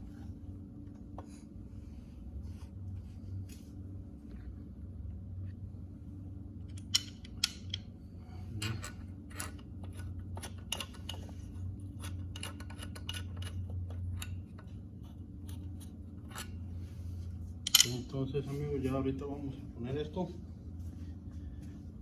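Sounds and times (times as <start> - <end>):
tools and metal parts clinking: 6.7 - 7.9, 8.6 - 14.7, 17.6 - 18.2.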